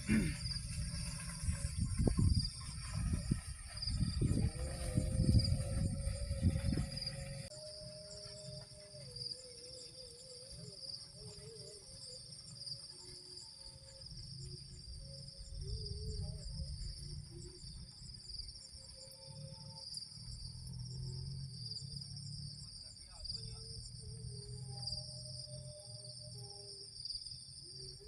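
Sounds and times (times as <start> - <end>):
low rumble: 0.0 - 7.5
faint wavering tones: 0.0 - 28.0
insects trilling: 0.0 - 28.0.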